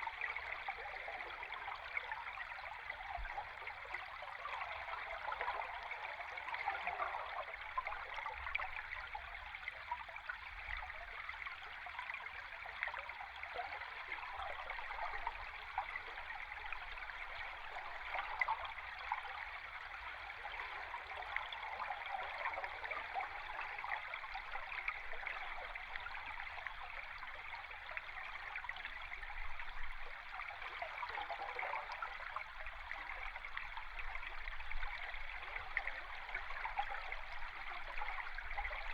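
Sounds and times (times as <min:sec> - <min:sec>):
underwater stream bubbling: 0:00.0 - 0:38.9.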